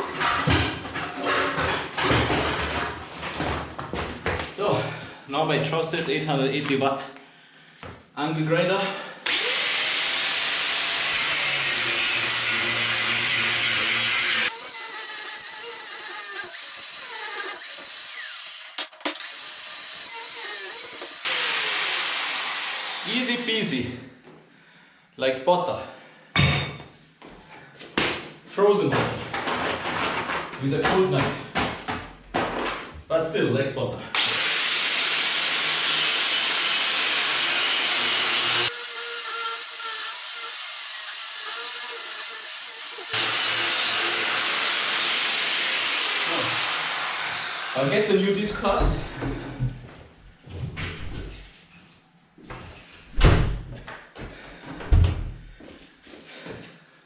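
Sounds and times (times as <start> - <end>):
angle grinder cutting concrete: 9.3 - 23.8, 34.2 - 48.5.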